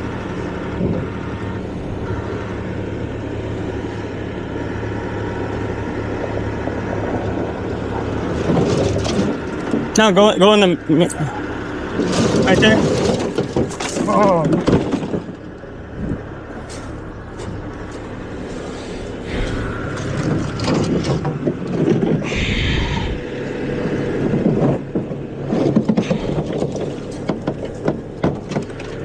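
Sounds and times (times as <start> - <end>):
loader engine running: 0.0 - 29.0
debris clanking and scraping: 7.8 - 10.1, 11.2 - 23.2, 23.8 - 29.0.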